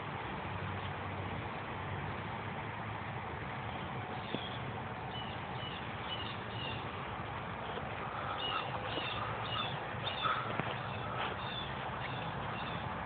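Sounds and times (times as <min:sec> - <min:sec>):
birds chirping: 0:03.7 - 0:13.0.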